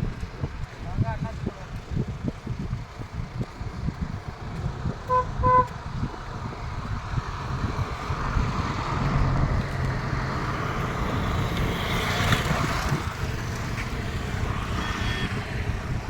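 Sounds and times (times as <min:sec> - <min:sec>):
vehicle engine rumbling: 0:00.0 - 0:16.0
rushing noise: 0:05.0 - 0:16.0.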